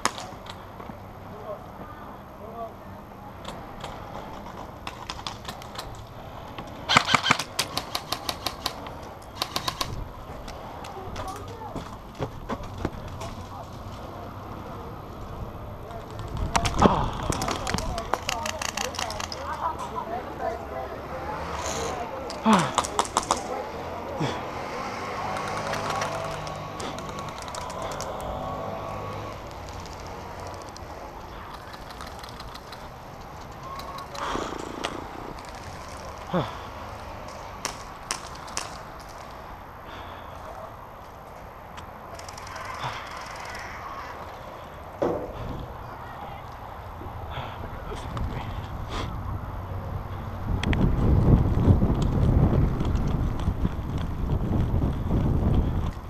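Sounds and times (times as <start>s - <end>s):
airsoft guns firing: 6.9s - 10.0s, 22.6s - 23.5s, 25.2s - 28.4s, 33.6s - 39.4s
distant rapid clicking shots: 6.9s - 10.0s, 22.7s - 23.5s, 25.1s - 28.5s, 29.2s - 39.4s.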